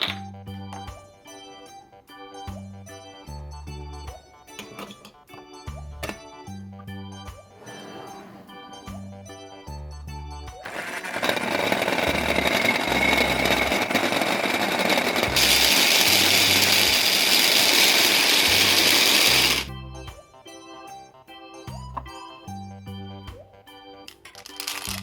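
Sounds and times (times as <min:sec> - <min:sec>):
background music: 0:00.0 - 0:25.0
blender running: 0:10.6 - 0:19.7.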